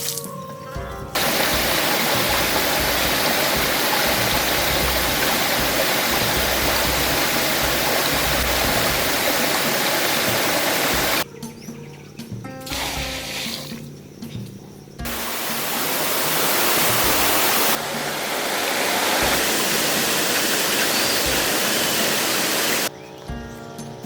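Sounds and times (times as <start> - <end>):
water rushing: 1.2 - 11.2, 15.0 - 22.9.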